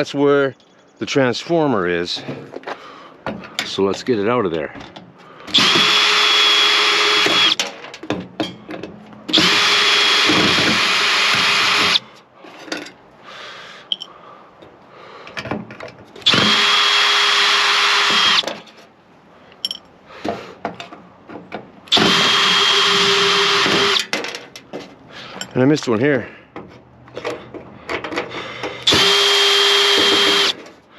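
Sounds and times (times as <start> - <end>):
power drill backing out screws: 5.5 - 7.8, 9.3 - 12.1, 16.2 - 18.6, 21.9 - 24.3, 28.0 - 30.8.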